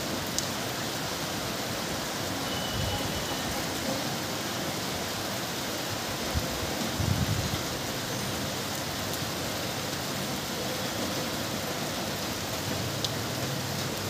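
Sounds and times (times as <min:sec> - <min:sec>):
rain on tiled roofs: 0:00.0 - 0:14.0.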